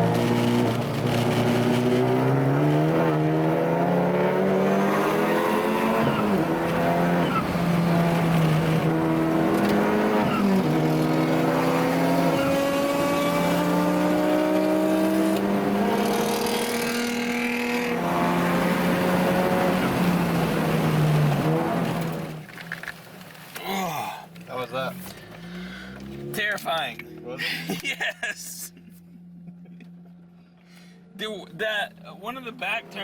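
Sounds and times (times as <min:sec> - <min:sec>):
race car engine accelerating: 0:00.0 - 0:22.4.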